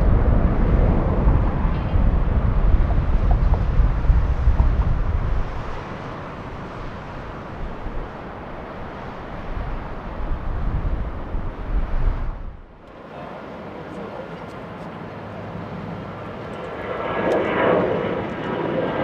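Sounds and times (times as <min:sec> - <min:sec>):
wind buffeting microphone: 0:00.0 - 0:13.0
jet engines rumbling: 0:00.0 - 0:19.0.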